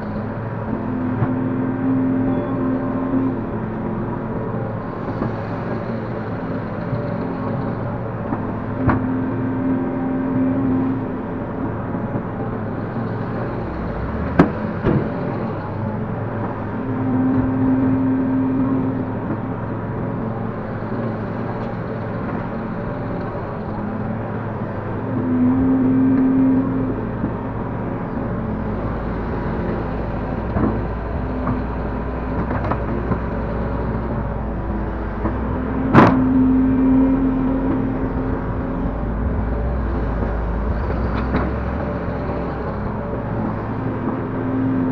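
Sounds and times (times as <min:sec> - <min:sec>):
excavator diesel engine running: 0:00.0 - 0:44.9
higher hydraulic hum: 0:00.0 - 0:44.9.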